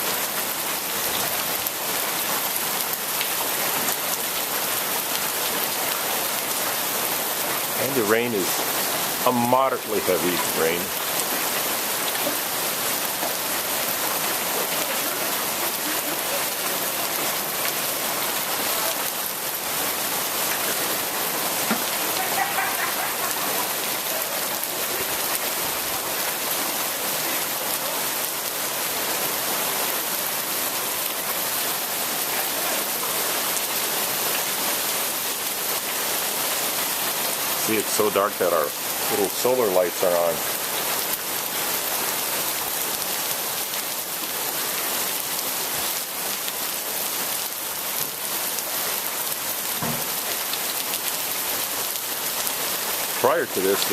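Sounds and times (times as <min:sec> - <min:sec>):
rain and hail hitting the ground: 0:00.0 - 0:53.9.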